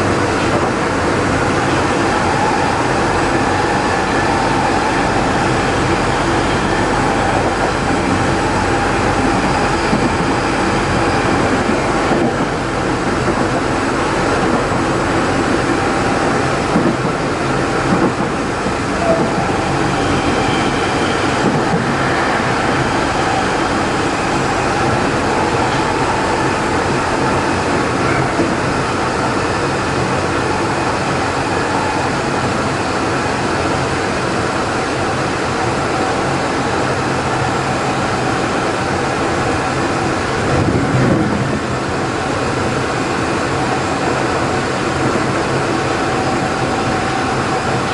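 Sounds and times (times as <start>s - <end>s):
train motor whine: 0.0s - 47.9s
wheel and rail rumble: 0.0s - 47.9s
rail joint clicks: 0.1s - 32.8s.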